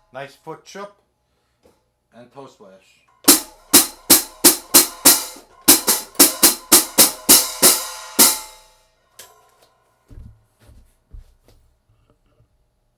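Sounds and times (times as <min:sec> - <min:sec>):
hi-hat cymbal strokes: 0:03.3 - 0:08.8.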